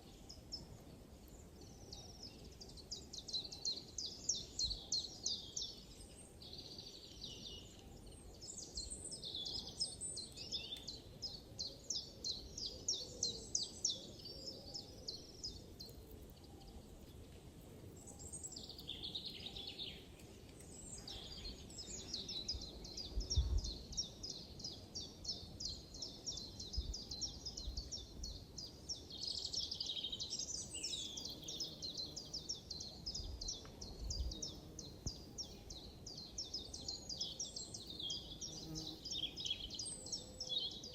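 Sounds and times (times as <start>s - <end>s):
birds chirping and trilling: 18.0s - 40.9s.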